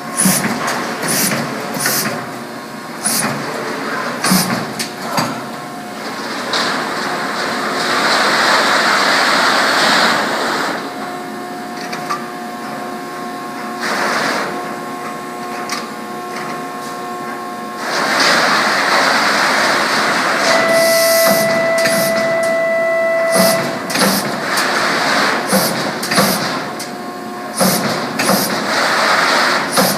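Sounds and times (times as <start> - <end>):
machine hissing loudly: 3.0 - 3.3, 20.5 - 22.4
machine whining tones: 18.6 - 24.7.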